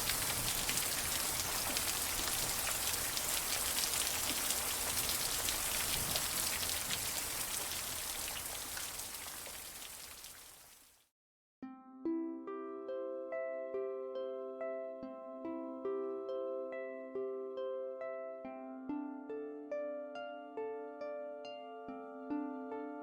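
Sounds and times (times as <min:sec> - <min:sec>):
steady rain patter: 0:00.0 - 0:11.1.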